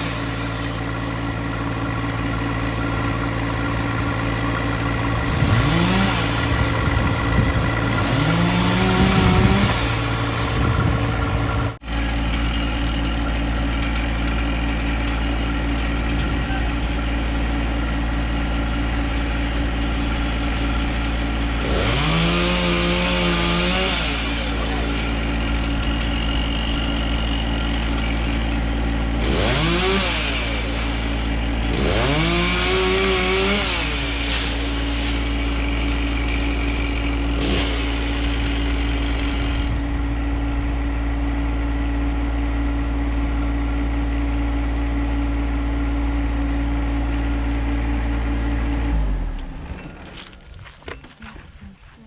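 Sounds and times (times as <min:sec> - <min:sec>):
chainsaw engine revving: 0:00.0 - 0:41.1, 0:46.2 - 0:51.4.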